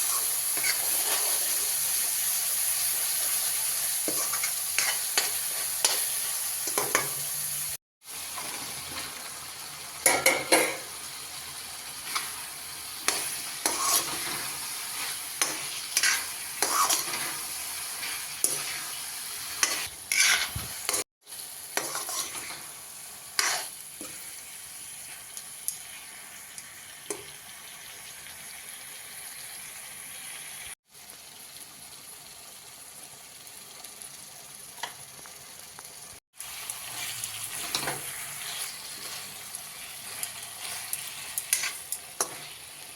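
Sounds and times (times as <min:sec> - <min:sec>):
spatula scraping a pan: 0:00.0 - 0:02.0, 0:03.2 - 0:07.2, 0:12.0 - 0:21.0, 0:21.7 - 0:22.8, 0:23.4 - 0:24.5, 0:36.8 - 0:42.7
okra sizzling in a pan: 0:00.0 - 0:42.9.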